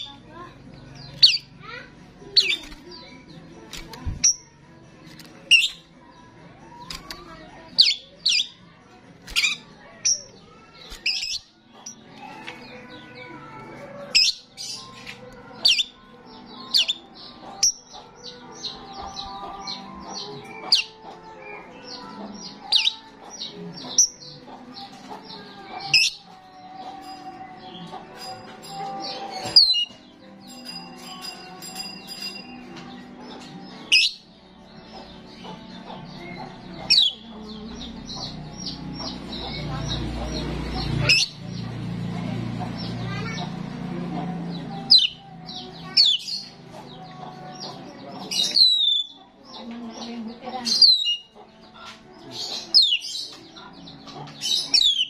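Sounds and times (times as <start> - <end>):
faint bird chatter: 0.0 - 55.0
starling whistles and chirps: 48.4 - 49.2.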